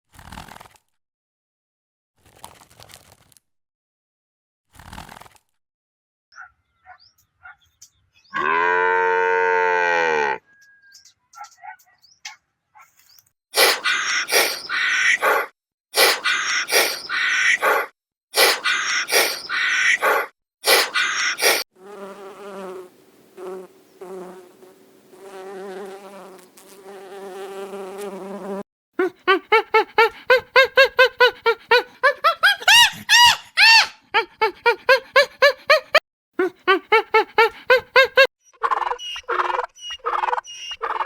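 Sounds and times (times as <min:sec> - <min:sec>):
short squeaky calls: 0:10.5 - 0:15.4, 0:16.0 - 0:17.8, 0:18.4 - 0:21.6, 0:32.4 - 0:34.0, 0:38.5 - 0:41.0
loud noisy animal bursts: 0:18.4 - 0:21.6
wasp buzzing in flight: 0:20.8 - 0:28.6.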